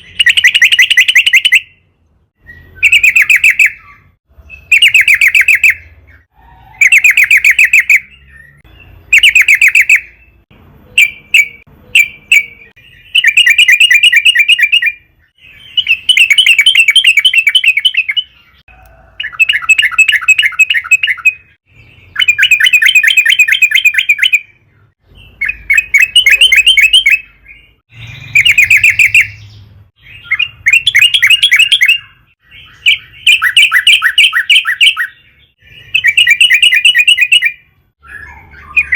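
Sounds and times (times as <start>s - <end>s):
bird singing bubbly chattering phrases: 0.0s - 1.8s, 2.5s - 10.3s, 11.0s - 38.9s.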